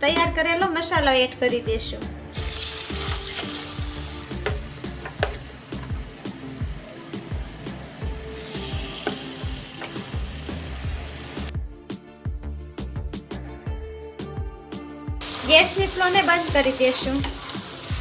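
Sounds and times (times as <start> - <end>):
food sizzling in hot oil: 2.3 - 11.5, 15.2 - 18.0.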